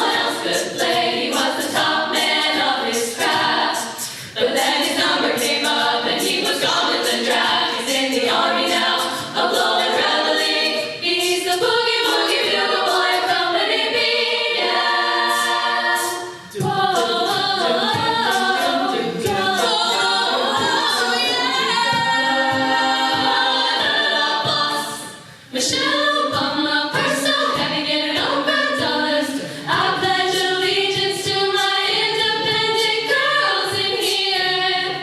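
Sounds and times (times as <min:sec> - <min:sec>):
a cappella harmony singing: 0:00.0 - 0:35.0.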